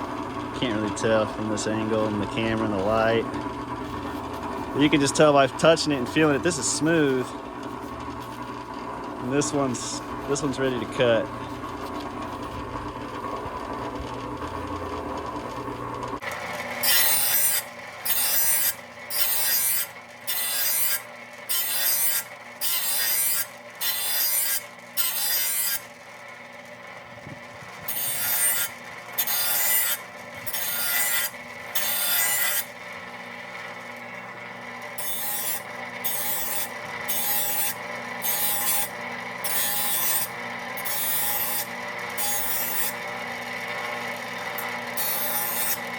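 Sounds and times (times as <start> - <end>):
file scraping steel blade: 16.5 - 25.9, 27.8 - 32.8, 34.8 - 45.9.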